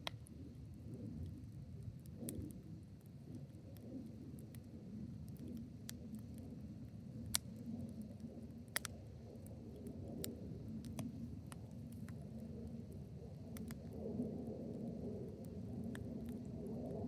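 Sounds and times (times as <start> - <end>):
wood fire crackling and popping: 1.2 - 17.0.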